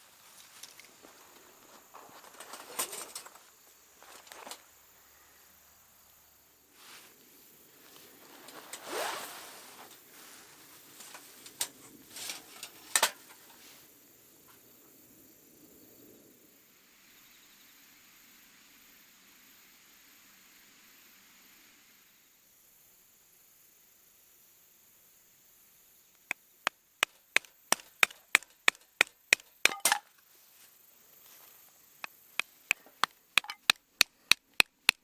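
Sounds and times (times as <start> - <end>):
insects chirring: 0.0 - 17.8, 24.6 - 35.0
rustling: 6.8 - 13.9
sharp clicks and knocks: 27.0 - 30.0, 32.0 - 35.0.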